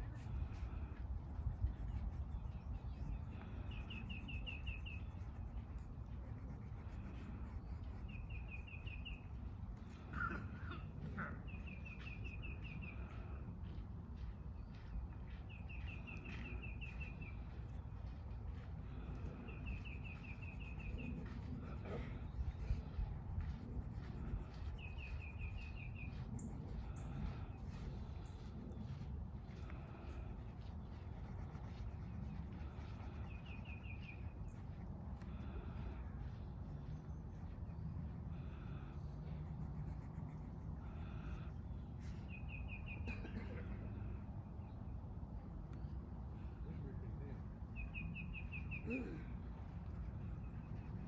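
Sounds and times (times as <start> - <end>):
low outdoor rumble: 0.0 - 51.0
songbird chirping: 7.8 - 22.0.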